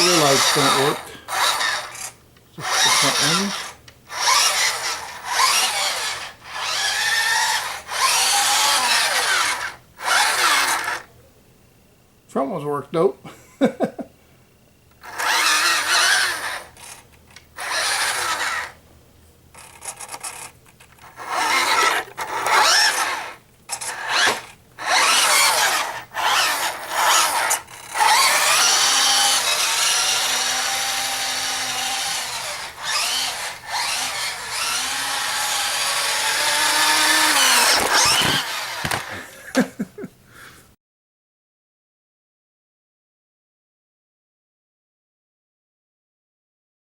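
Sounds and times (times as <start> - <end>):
electric motor whining: 0.0 - 11.1, 15.0 - 17.0, 17.6 - 18.8, 19.6 - 39.4.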